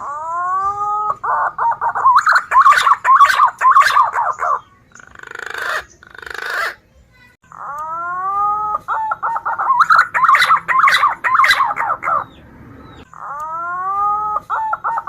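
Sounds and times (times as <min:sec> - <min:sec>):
pigeon whistled calls: 0:00.0 - 0:06.8, 0:07.6 - 0:12.4.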